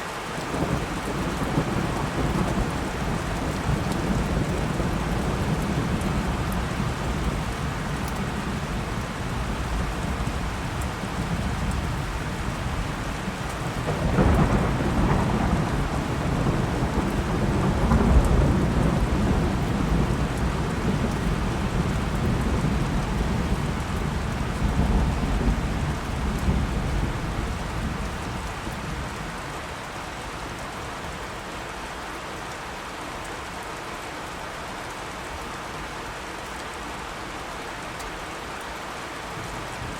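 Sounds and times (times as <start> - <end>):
steady rain hiss: 0.0 - 39.9
thunder rumbling: 11.0 - 29.2.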